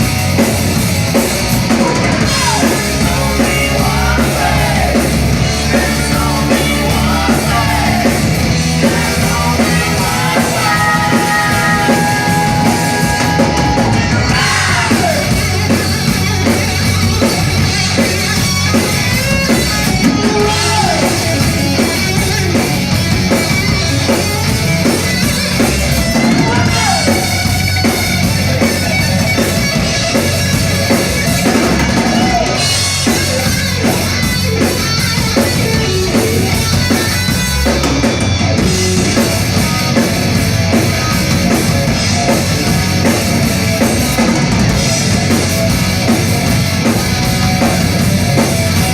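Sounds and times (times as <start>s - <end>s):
drum kit: 0.0s - 48.9s
rock band playing: 0.0s - 48.9s
person singing and shouting: 1.8s - 15.6s, 20.0s - 21.5s, 26.1s - 27.5s, 31.6s - 32.7s.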